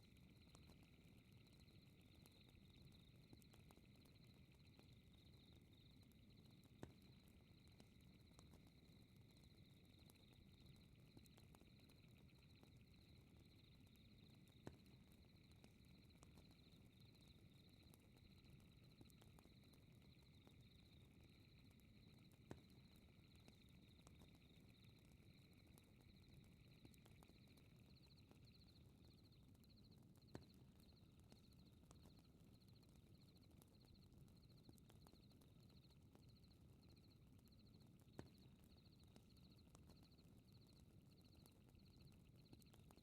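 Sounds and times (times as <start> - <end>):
night insects chirping: 0.0 - 29.9.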